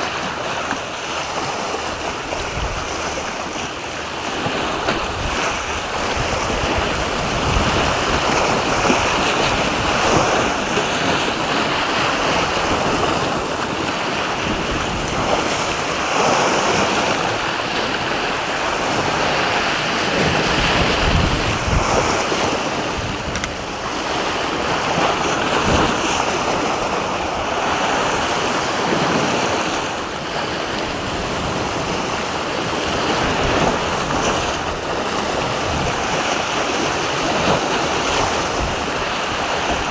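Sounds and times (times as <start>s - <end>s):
sea waves washing: 0.0s - 39.9s
wind buffeting microphone: 1.4s - 39.9s.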